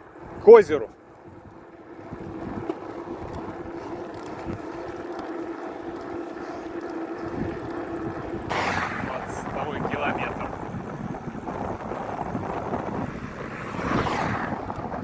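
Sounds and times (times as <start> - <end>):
wind noise on microphone: 0.0 - 15.0
tyre rolling noise: 6.3 - 15.0.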